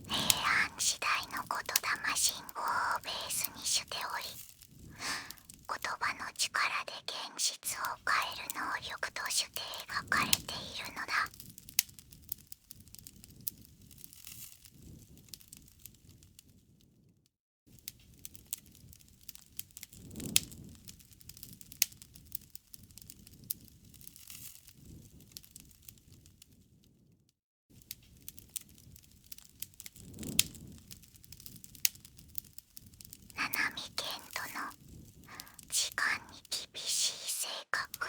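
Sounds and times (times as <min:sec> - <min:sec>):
wood fire crackling: 0:00.0 - 0:06.6, 0:17.9 - 0:26.3, 0:27.9 - 0:36.4.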